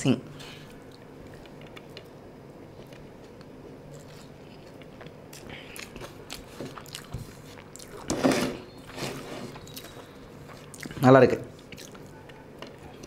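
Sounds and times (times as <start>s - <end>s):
person chewing food: 0.6s - 13.0s.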